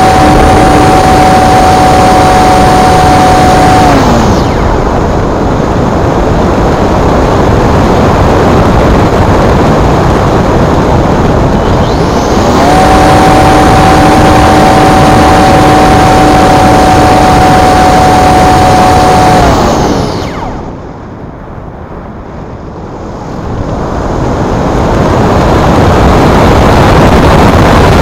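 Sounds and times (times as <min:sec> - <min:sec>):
electric motor whining: 0:00.0 - 0:05.8, 0:10.6 - 0:20.8
wind rush on microphone: 0:00.0 - 0:28.0.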